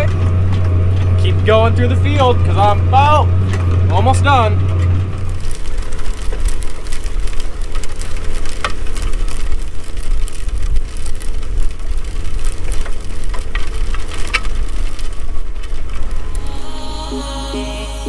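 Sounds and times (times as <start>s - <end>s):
sharp clicks and rattles: 0.0s - 18.0s
tractor engine running: 0.0s - 18.0s.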